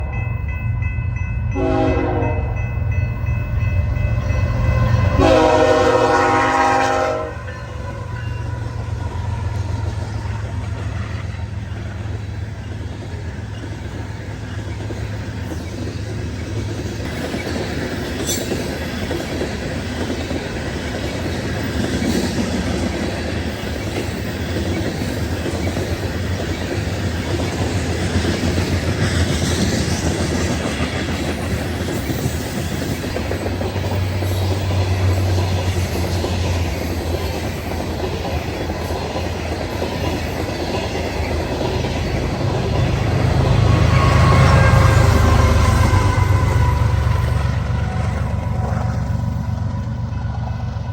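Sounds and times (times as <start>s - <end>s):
diesel locomotive rumble: 0.0s - 50.9s
train air horn blasts: 1.5s - 2.6s, 5.0s - 8.1s, 43.2s - 48.8s.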